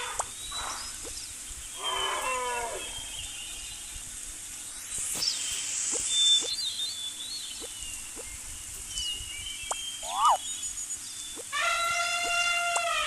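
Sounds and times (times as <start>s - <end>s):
animal cry with falling pitch: 1.8s - 3.0s, 10.0s - 10.4s, 11.5s - 13.0s.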